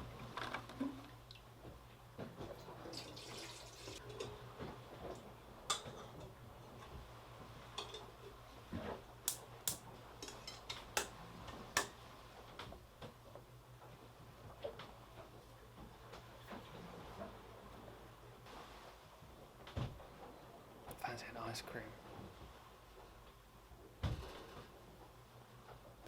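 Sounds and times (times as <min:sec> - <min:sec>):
sharp clicks and light knocks: 0:09.3 - 0:12.0.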